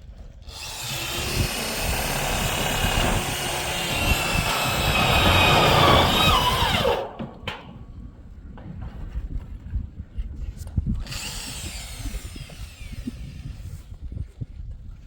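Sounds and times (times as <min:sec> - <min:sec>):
power tool motor running: 0:00.5 - 0:07.4, 0:11.1 - 0:13.3
short knocks: 0:00.6 - 0:08.0.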